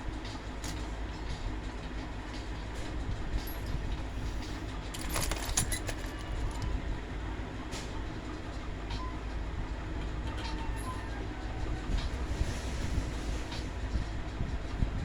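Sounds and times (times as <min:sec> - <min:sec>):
light metallic clinks: 0:04.9 - 0:06.7.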